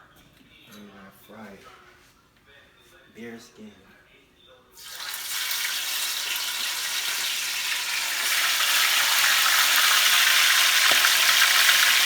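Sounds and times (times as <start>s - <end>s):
chicken wings frying in oil: 4.8s - 12.0s.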